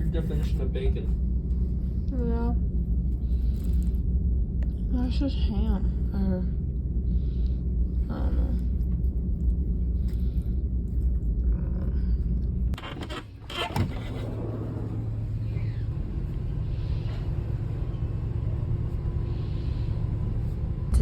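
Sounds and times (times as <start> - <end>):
low hum: 0.0 - 21.0
steady low rumble: 0.0 - 21.0.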